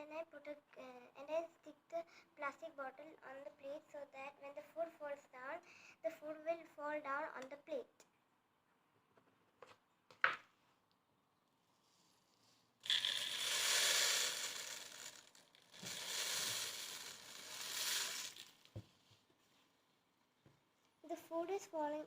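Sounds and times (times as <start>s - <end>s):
bird seed pouring into plastic feeder: 12.8s - 18.7s.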